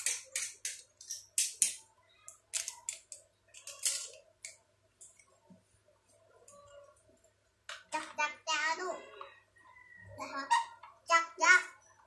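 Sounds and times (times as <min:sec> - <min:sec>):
plastic toy parts clicking and rattling: 0:00.0 - 0:05.1.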